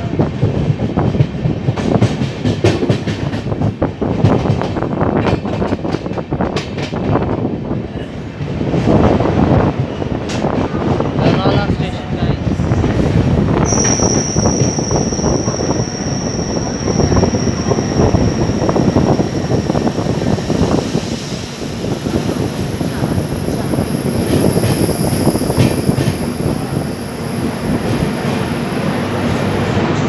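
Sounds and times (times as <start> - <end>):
train wheels rumbling: 0.0 - 30.0
high squeal: 13.6 - 20.0.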